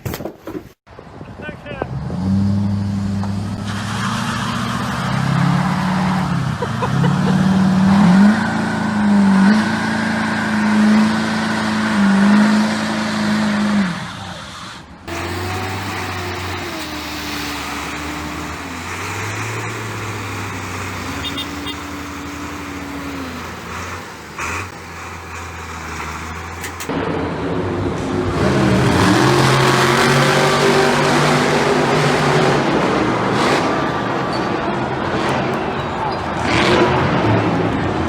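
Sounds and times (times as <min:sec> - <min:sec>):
engine revving: 0:01.8 - 0:38.0
engine running steadily: 0:15.1 - 0:30.1.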